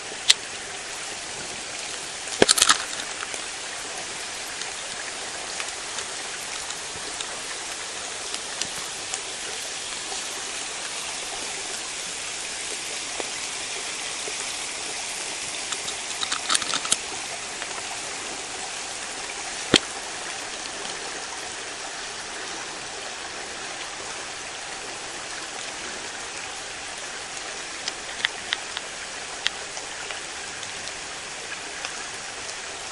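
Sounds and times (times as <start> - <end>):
steady woodland hiss: 0.0 - 32.9.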